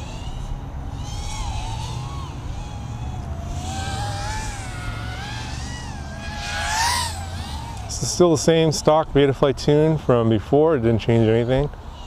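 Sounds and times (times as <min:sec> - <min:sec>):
drone motors whining: 0:00.0 - 0:09.0.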